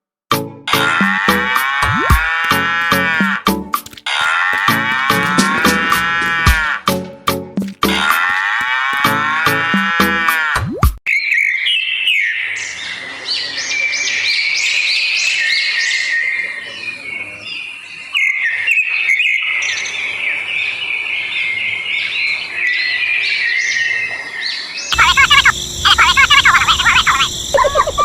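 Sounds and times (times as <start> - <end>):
many birds chirping: 11.1 - 28.0.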